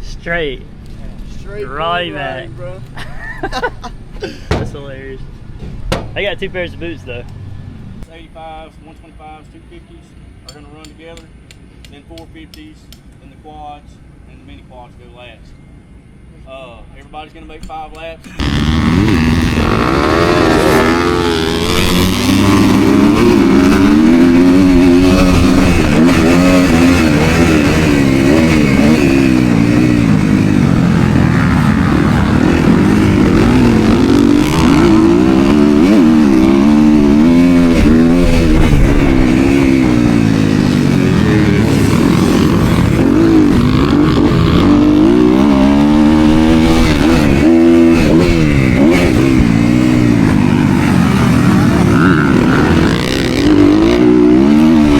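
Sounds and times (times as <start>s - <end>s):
dirt bike engine revving: 18.3s - 54.9s.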